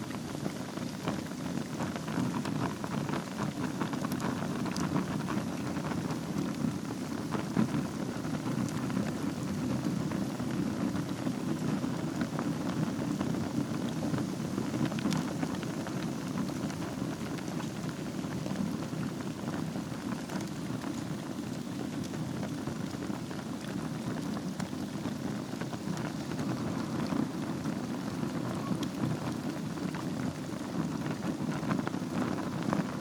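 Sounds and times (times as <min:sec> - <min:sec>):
wood fire crackling and popping: 0:00.0 - 0:33.0.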